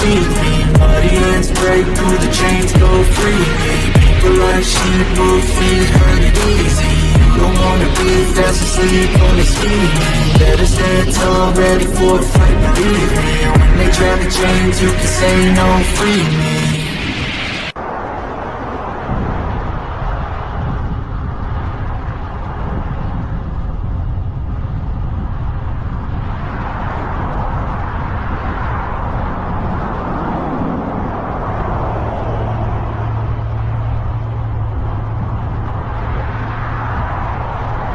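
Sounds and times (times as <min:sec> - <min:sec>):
low steady hum: 0:00.0 - 0:17.1
road and traffic noise: 0:00.0 - 0:37.9
wind rumbling on microphone: 0:00.0 - 0:37.9.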